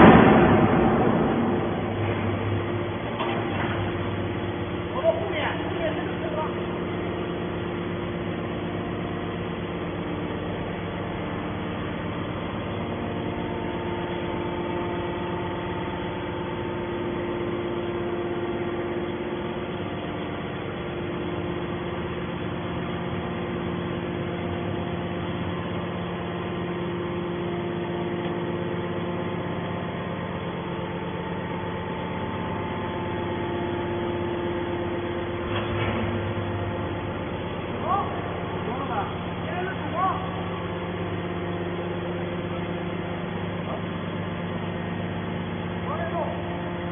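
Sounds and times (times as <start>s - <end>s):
scrap metal baler humming: 0.0s - 46.9s.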